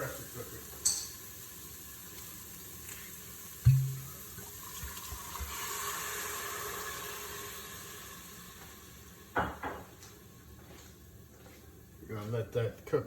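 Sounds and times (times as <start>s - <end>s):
wine hissing in hot pot: 0.0s - 9.4s
quick knocks: 3.7s - 4.1s
thump: 3.7s - 4.1s.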